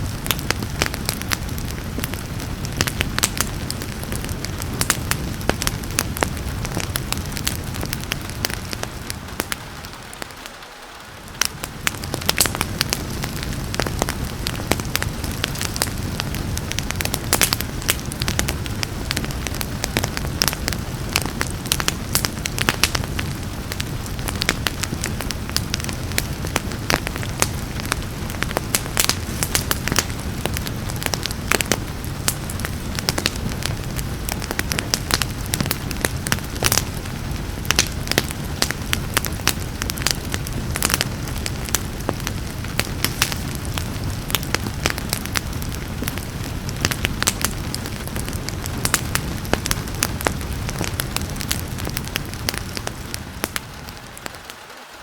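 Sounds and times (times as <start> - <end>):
low rumble of burning: 0.0 - 55.0
rain hissing: 0.0 - 55.0
wood fire crackling and popping: 0.0 - 55.0.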